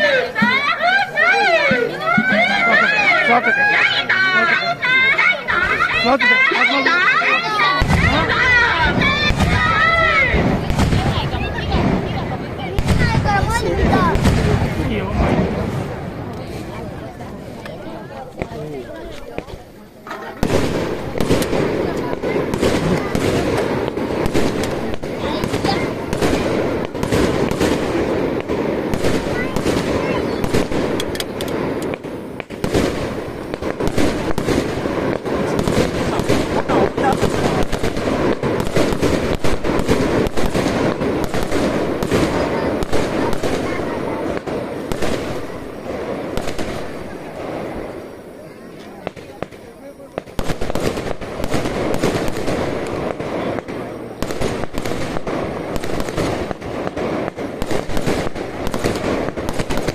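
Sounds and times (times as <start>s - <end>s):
ground fireworks crackling: 0.0s - 59.9s.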